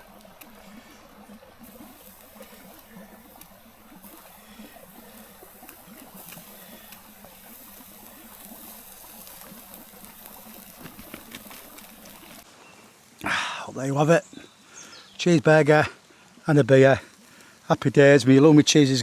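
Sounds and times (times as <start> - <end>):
faint clicks: 0.0 - 12.5
stream flowing: 0.0 - 19.0.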